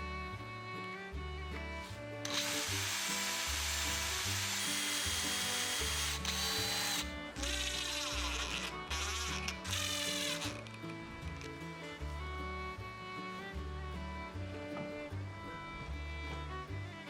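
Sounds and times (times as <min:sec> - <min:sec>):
background music: 0:00.0 - 0:17.0
power tool whining: 0:02.2 - 0:11.5.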